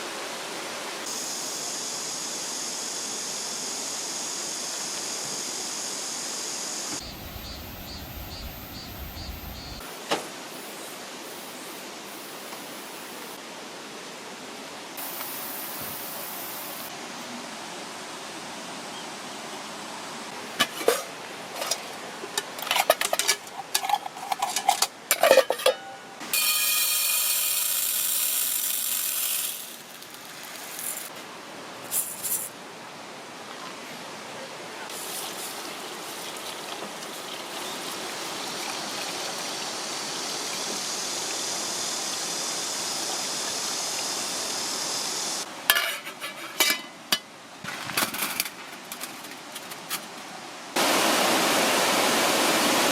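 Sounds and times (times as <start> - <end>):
rush of hiss: 15.0 - 17.0
stream running: 27.7 - 45.7, 50.2 - 52.9.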